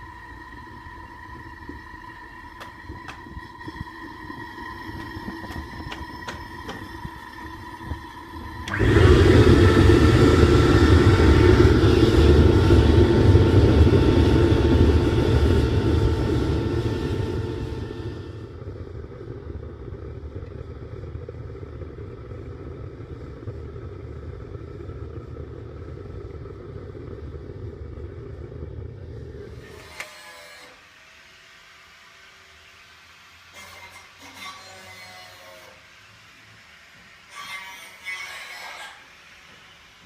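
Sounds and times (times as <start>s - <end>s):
vacuum cleaner motor whine: 0.0s - 18.7s
gas burner rushing rumble: 0.0s - 34.0s.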